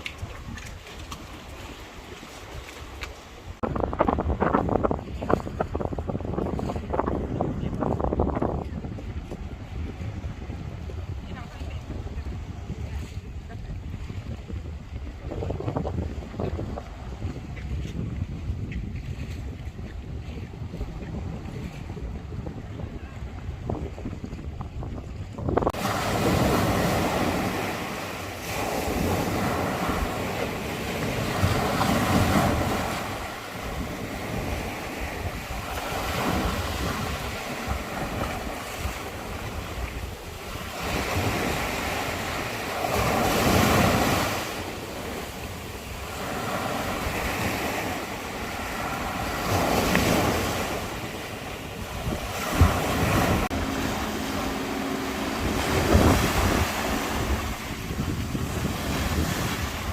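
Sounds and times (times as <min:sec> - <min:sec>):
wind buffeting microphone: 0:00.0 - 0:59.9
sea waves washing in: 0:20.2 - 0:59.9.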